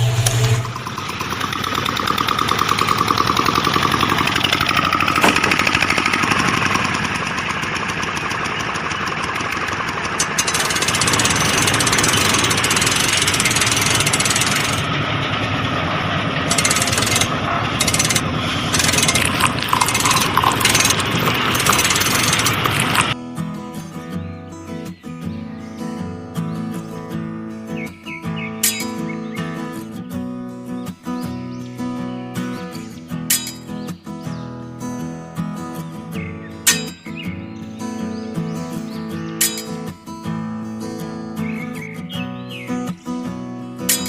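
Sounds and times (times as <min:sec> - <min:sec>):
small machine rattling: 0:00.0 - 0:23.2.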